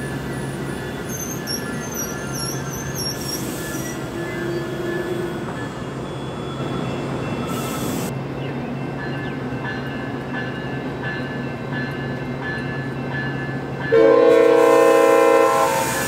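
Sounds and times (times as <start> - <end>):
wavering high squeals: 0.0 - 8.1
train rumble and hum: 0.0 - 16.0.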